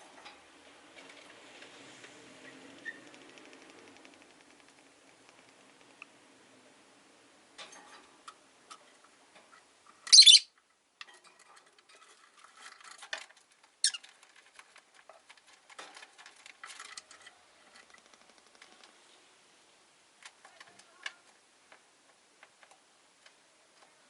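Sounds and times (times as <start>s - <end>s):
light clicks and rustles: 7.6s - 19.2s
bird shrill chirps: 10.1s - 10.5s.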